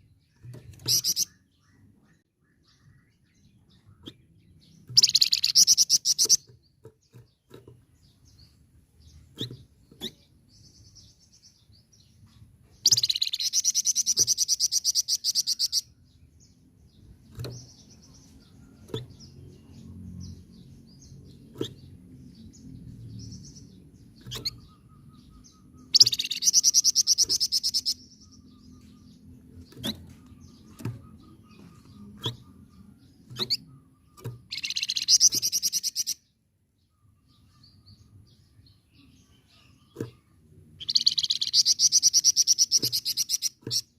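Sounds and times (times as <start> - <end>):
songbird chattering trills: 0.6 - 6.7, 12.8 - 15.9, 19.1 - 36.3, 37.2 - 43.9.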